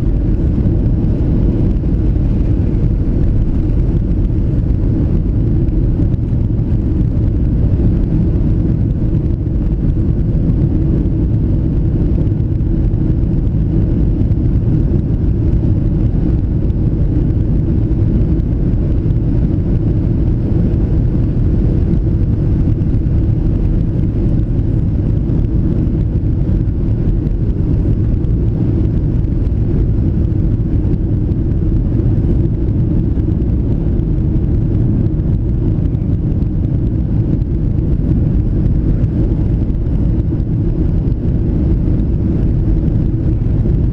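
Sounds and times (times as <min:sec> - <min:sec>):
airliner cabin engine rumble: 0:00.0 - 0:43.9.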